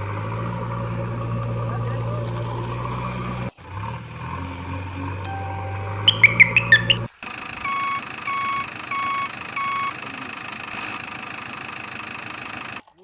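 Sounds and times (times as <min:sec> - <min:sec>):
engine noise: 0:00.0 - 0:12.9
high rising chirps: 0:05.3 - 0:07.1
reversing alarm beeps: 0:05.6 - 0:10.0.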